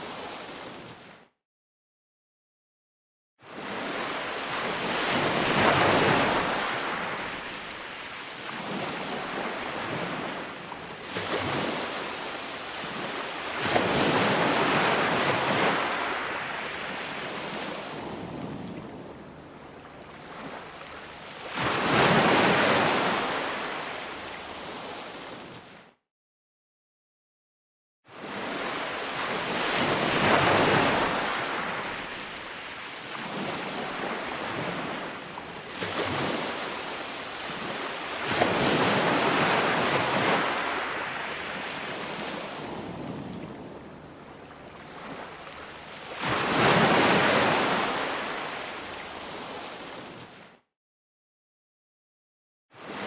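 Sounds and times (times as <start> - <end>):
ocean waves crashing: 3.6 - 25.3, 28.3 - 50.1.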